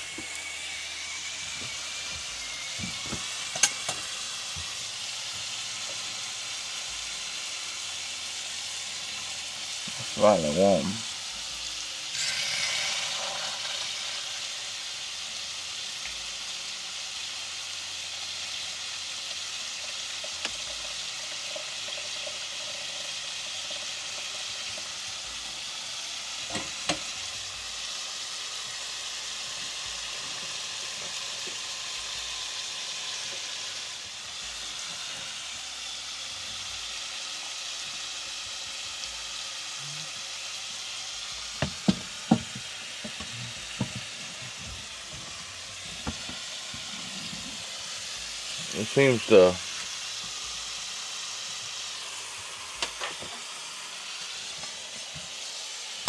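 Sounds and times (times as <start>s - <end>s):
sausage patties sizzling in a pan: 0.0s - 56.0s.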